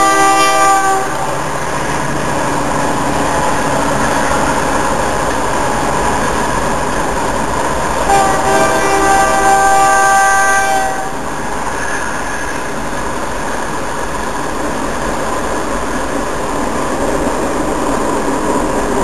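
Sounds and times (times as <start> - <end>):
train horn chord: 0.0 - 1.4, 8.1 - 11.2
freight train wheels rumbling: 0.0 - 19.0.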